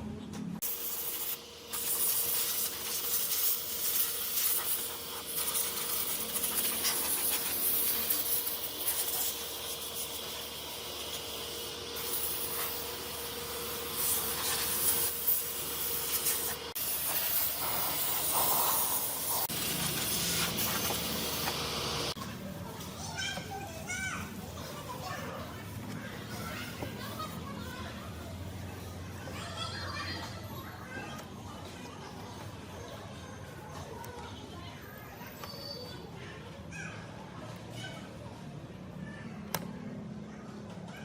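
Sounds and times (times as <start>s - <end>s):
steady hissing noise: 0.6s - 22.2s.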